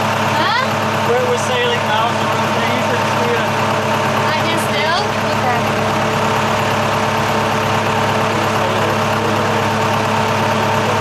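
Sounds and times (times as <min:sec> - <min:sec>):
boat diesel engine humming: 0:00.0 - 0:11.0.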